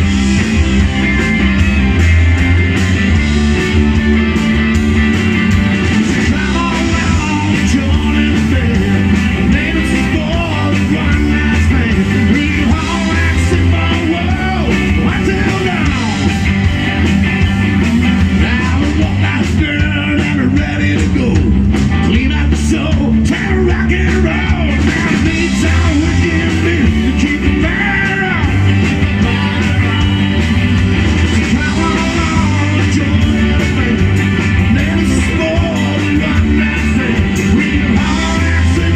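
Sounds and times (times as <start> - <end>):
drums: 0.0 - 38.9
electric guitar: 0.0 - 38.9
heavy bass line: 0.0 - 38.9
person singing: 6.1 - 16.4, 18.3 - 30.2, 31.3 - 38.9.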